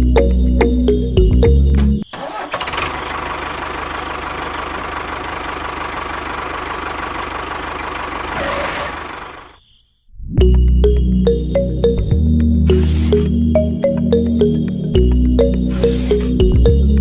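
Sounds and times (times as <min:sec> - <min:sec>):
small motor rattling and whining: 0:06.9 - 0:09.4.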